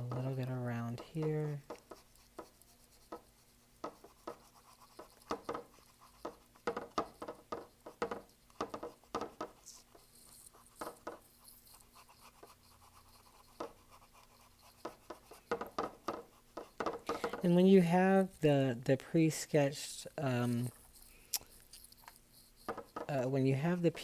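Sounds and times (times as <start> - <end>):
paintbrush scrubbing on canvas: 0.0 - 18.4, 19.8 - 24.0.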